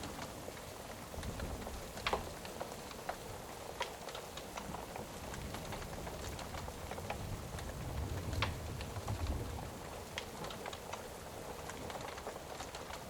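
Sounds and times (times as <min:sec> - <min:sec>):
rain falling: 0:00.0 - 0:13.0
wood fire crackling: 0:00.0 - 0:13.0.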